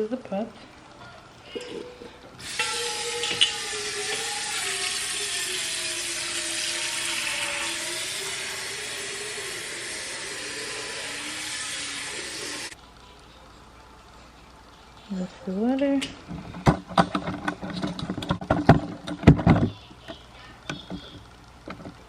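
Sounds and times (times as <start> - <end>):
tap water running into a pot: 2.4 - 12.8.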